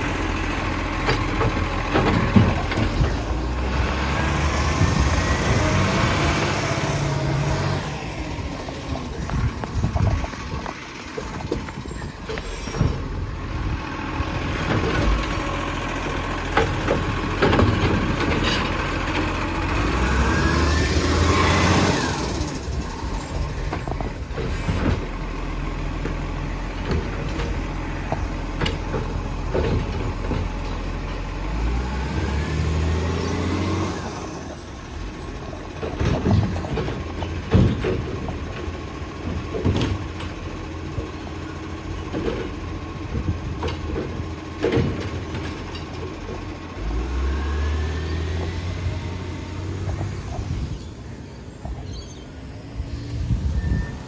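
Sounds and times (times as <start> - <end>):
knocks and clatter: 0.0 - 3.8, 14.3 - 20.1, 23.6 - 31.3, 35.6 - 46.7
garbage truck engine revving: 0.0 - 54.0.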